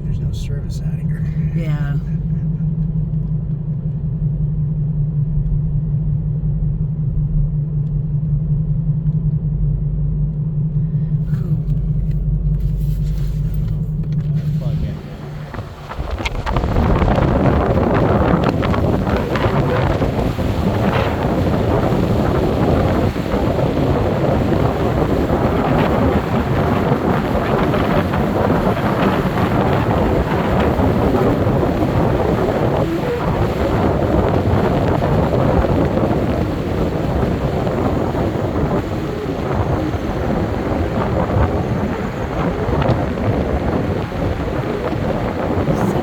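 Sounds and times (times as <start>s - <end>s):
car road and wind noise: 0.0s - 46.0s
wind buffeting microphone: 14.4s - 46.0s.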